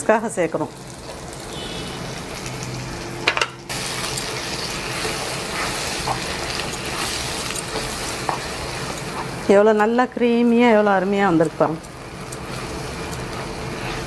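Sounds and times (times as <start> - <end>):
potatoes sizzling in oil: 0.0 - 14.0
wooden spatula stirring: 4.5 - 9.6.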